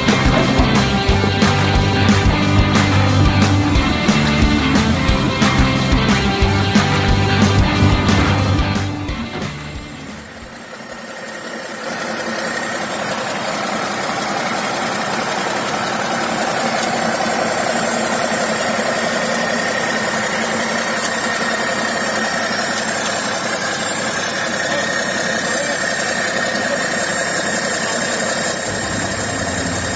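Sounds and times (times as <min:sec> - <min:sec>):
toy vehicle motor drone: 0:10.1 - 0:14.6, 0:15.2 - 0:29.9.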